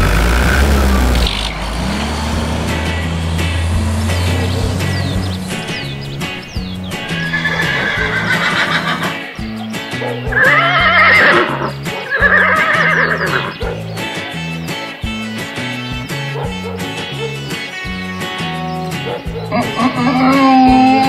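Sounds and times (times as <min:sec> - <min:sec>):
music with repeating bass line: 0:00.0 - 0:21.0
horse whinnying: 0:06.4 - 0:09.3, 0:10.3 - 0:13.6, 0:19.5 - 0:21.0.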